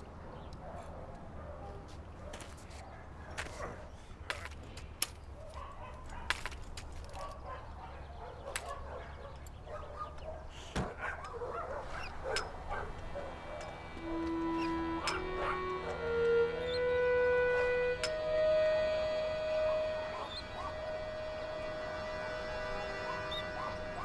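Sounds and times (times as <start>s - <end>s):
dogs barking and yelping: 5.4s - 17.4s, 19.5s - 21.3s, 22.4s - 24.0s
steady low hum: 11.8s - 24.0s.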